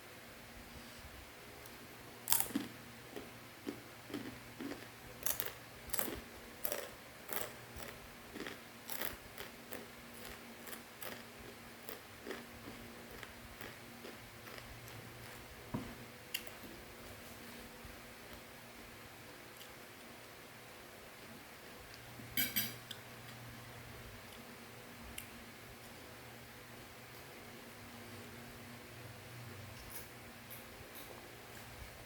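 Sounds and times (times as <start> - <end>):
faint steady hum: 0.0 - 32.0
crunchy snack being chewed: 2.3 - 15.5.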